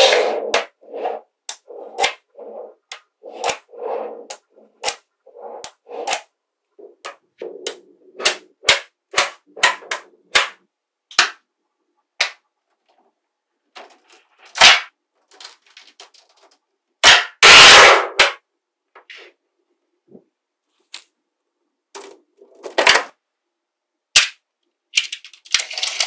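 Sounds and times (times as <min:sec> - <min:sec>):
clatter of balls: 0:25.0 - 0:26.0.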